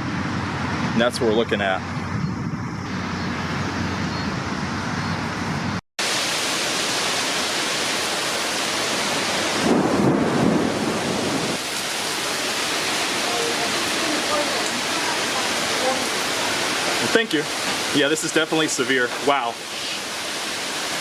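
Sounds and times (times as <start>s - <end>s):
road and engine noise: 0.0s - 21.0s
storm wind: 0.0s - 21.0s
heavy rain: 6.0s - 21.0s
thunder rumble: 8.8s - 16.7s.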